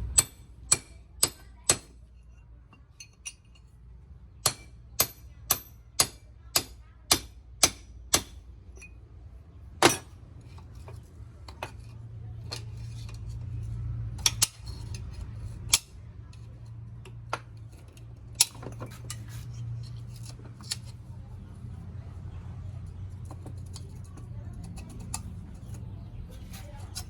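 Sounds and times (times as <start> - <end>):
steady low hum: 0.0 - 1.6.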